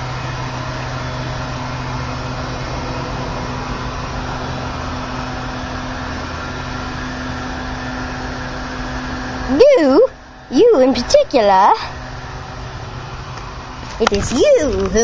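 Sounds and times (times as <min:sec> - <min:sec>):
mechanical hum with airy hiss: 0:00.0 - 0:15.0.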